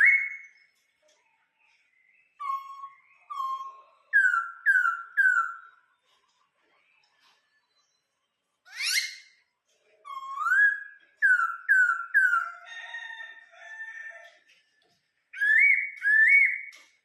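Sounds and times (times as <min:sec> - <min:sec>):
bird whistling song: 0:00.0 - 0:00.8, 0:02.0 - 0:05.8, 0:08.7 - 0:09.4, 0:10.1 - 0:12.6, 0:15.3 - 0:16.9.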